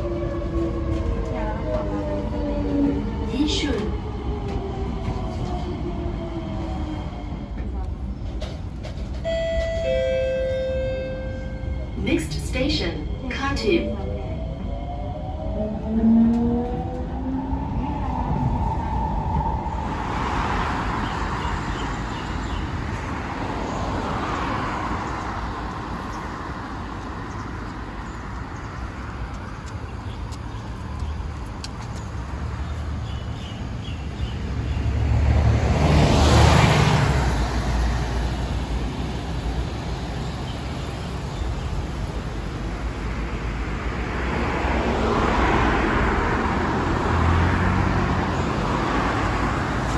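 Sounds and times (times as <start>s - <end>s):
train running rumble: 0.0s - 20.2s.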